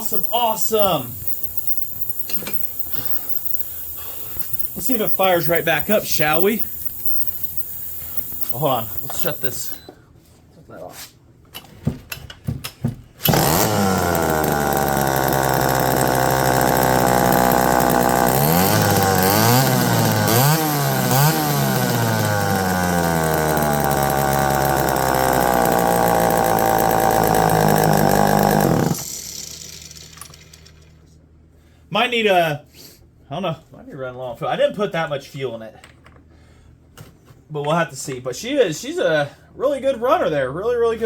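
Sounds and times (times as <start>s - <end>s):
chainsaw engine revving: 0.0s - 9.8s, 13.2s - 30.8s
chainsaw pull starter: 0.0s - 9.9s, 13.2s - 31.0s.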